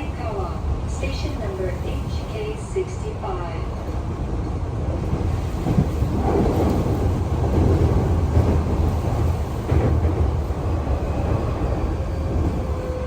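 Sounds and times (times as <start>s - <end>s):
wind gusting over microphone: 3.7s - 13.0s.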